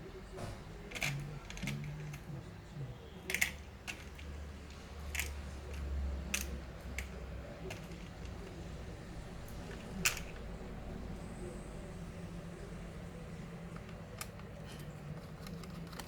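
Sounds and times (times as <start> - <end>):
clicks of laptop parts and tools: 13.7 - 16.0.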